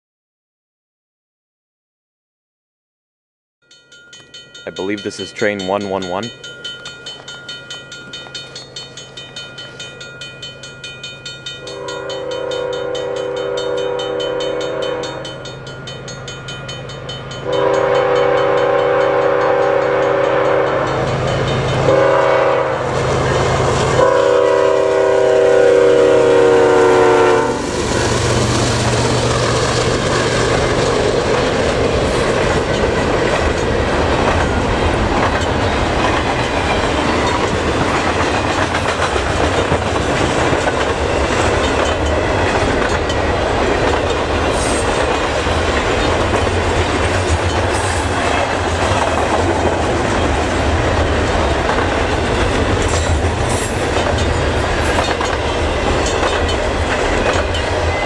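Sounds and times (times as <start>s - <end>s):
diesel locomotives rumbling: 4.4s - 58.0s
train air horn blasts: 11.6s - 15.3s, 17.4s - 21.2s, 21.8s - 23.1s, 23.8s - 28.4s
train wheels clickety-clack: 27.6s - 58.0s.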